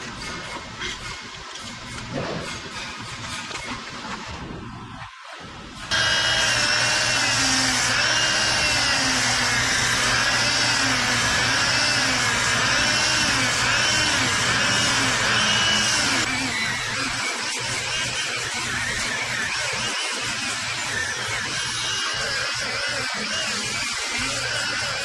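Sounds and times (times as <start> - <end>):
electric power tool motor: 5.9 - 25.0.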